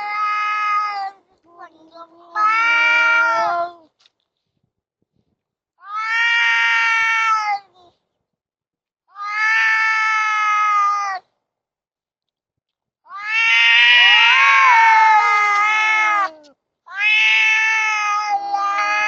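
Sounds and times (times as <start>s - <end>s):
cats yowling: 0.0s - 3.8s, 5.9s - 7.8s, 9.2s - 11.2s, 13.1s - 19.0s.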